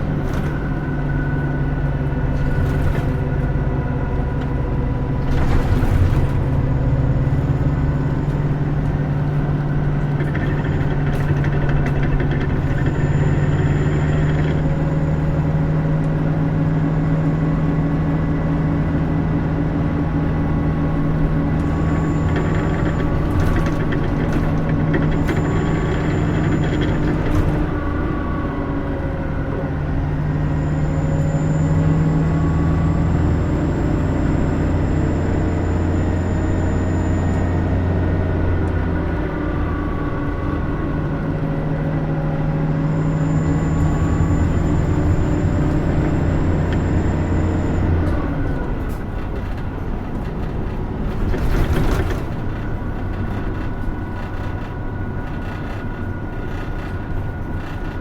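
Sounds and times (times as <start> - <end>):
bus body rattles: 0.0 - 42.7, 43.4 - 58.0
bus engine pulling under load: 0.0 - 58.0.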